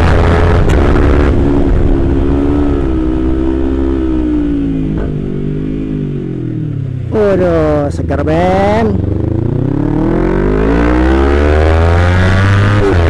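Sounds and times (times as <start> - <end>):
wind rumble on microphone: 0.0 - 6.2
motorcycle engine slowing: 0.0 - 11.5.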